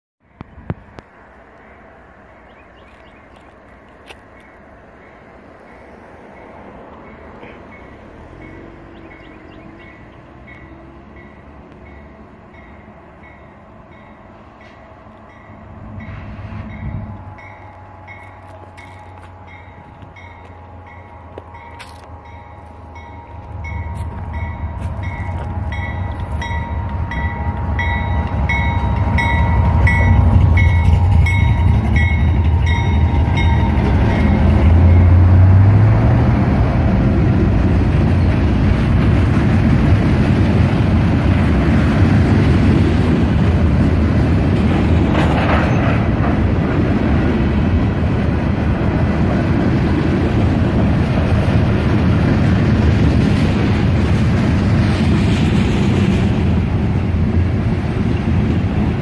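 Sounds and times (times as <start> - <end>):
diesel locomotive engine rumble: 0.2 - 59.0
bell ringing: 16.8 - 35.2.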